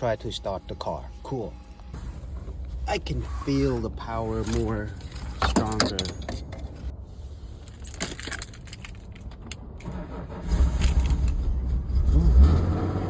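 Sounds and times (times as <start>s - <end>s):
keys jangling in ignition: 7.6s - 11.6s
car engine starting and running: 8.6s - 13.0s.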